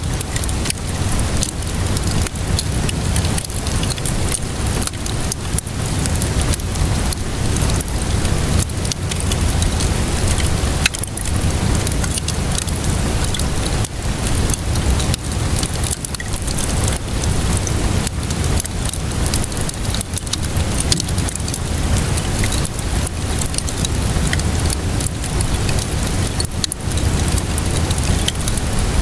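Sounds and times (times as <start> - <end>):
steady rainfall: 0.0 - 29.0
wood fire crackling: 0.0 - 29.0.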